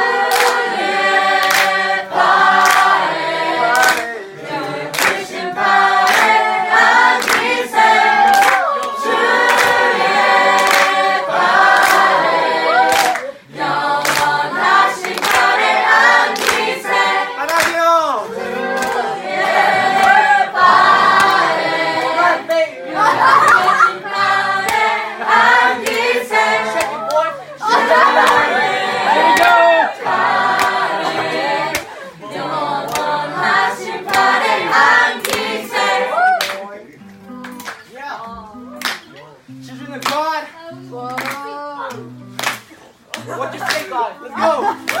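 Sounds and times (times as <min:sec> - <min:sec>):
group singing worship song: 0:00.0 - 0:36.4.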